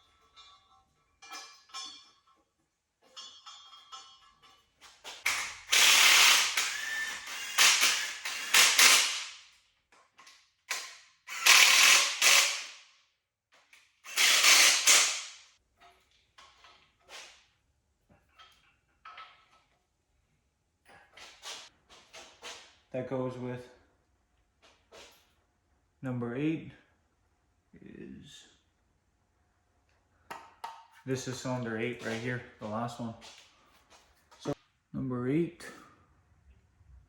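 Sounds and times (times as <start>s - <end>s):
ratchet wrench clicking: 5.3s - 9.4s, 10.7s - 12.8s, 14.1s - 15.4s.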